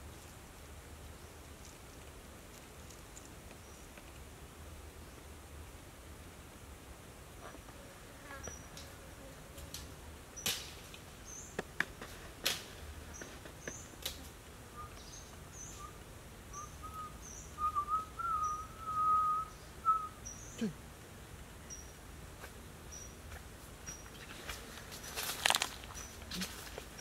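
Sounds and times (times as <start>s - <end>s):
bird chirping: 14.8s - 20.6s
wavering whistled bird call: 14.8s - 20.6s.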